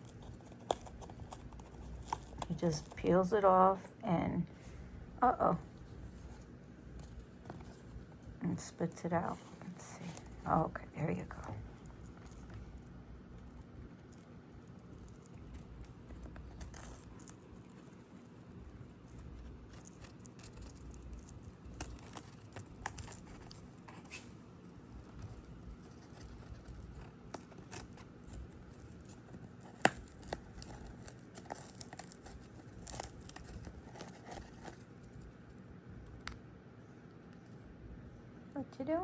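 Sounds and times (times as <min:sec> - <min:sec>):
parrot tearing cardboard: 0:00.0 - 0:03.2, 0:09.4 - 0:35.4.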